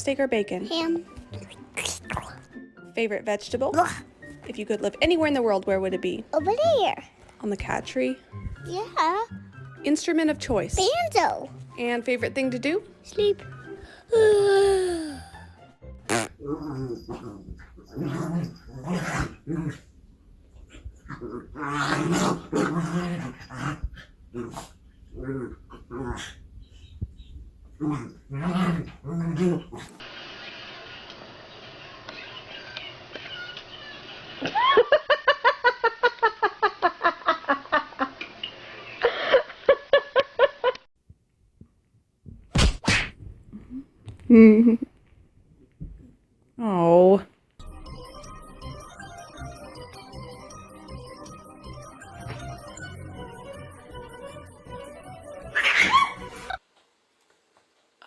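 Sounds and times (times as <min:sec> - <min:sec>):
dog growling: 0:16.4 - 0:20.0, 0:20.6 - 0:26.6, 0:27.7 - 0:30.0.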